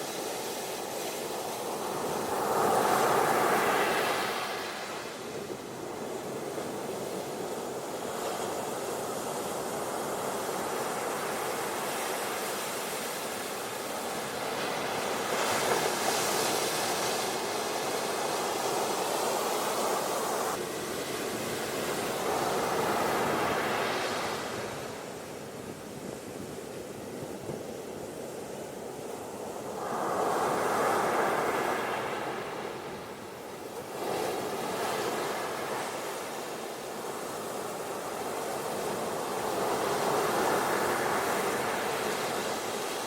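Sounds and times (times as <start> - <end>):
ocean waves on beach: 0.0 - 43.0.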